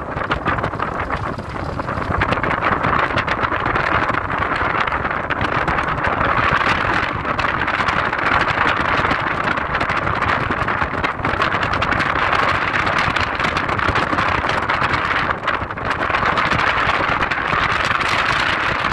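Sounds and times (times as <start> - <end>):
wind noise: 0.0 - 18.9
car road noise: 0.3 - 3.4.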